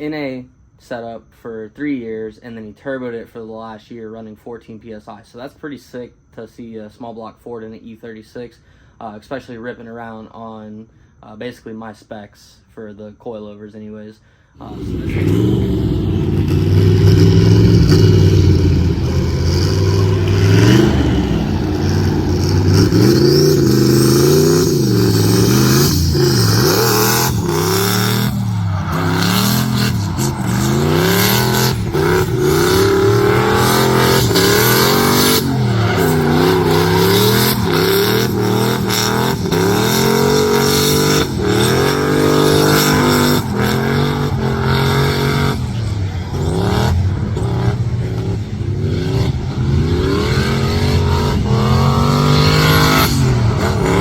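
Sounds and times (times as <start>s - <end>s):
car engine revving: 14.6s - 54.0s.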